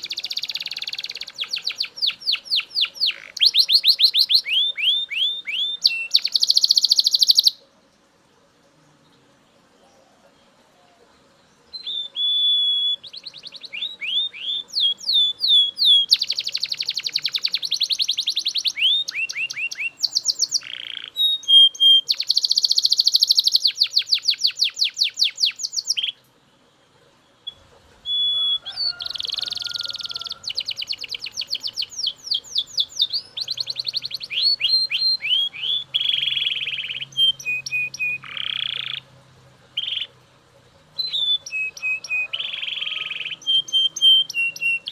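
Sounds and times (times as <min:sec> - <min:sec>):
canary singing: 0:00.0 - 0:07.7, 0:09.8 - 0:26.3, 0:27.3 - 0:44.9.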